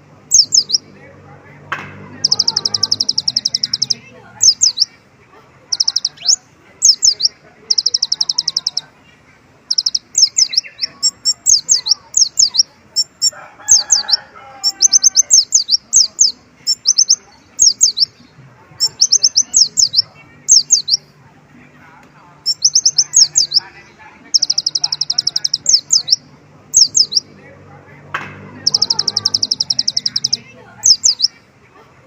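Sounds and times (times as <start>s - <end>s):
bird chirping and trilling: 0.2s - 0.9s, 2.1s - 5.0s, 5.7s - 8.9s, 9.6s - 21.1s, 22.4s - 27.3s, 28.6s - 31.4s.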